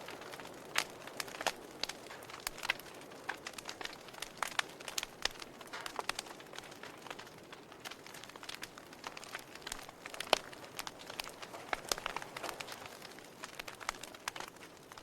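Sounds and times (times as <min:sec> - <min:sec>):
soft steady hiss: 0:00.0 - 0:15.0
wood fire crackling: 0:00.0 - 0:15.0.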